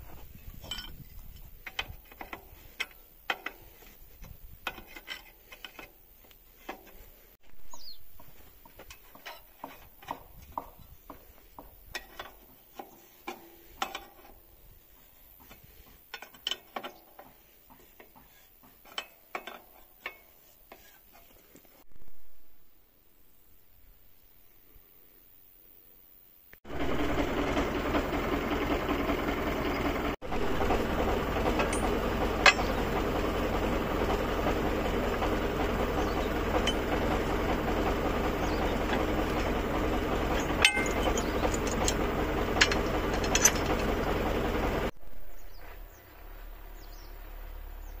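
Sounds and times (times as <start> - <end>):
mower engine running: 0.0 - 14.4, 26.6 - 48.0.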